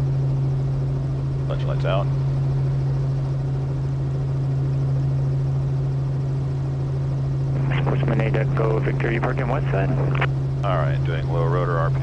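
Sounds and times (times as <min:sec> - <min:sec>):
helicopter engine and rotor drone: 0:00.0 - 0:12.0
person speaking: 0:07.6 - 0:12.0.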